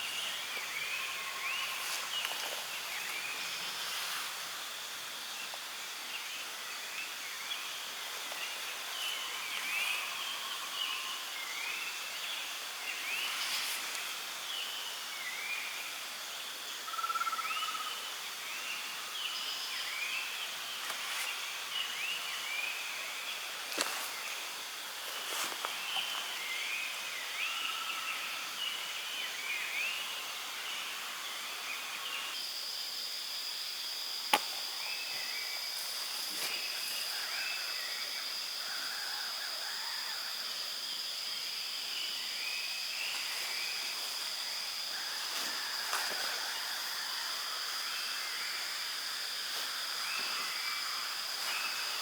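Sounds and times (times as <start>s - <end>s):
steady forest hiss: 0.0s - 52.0s.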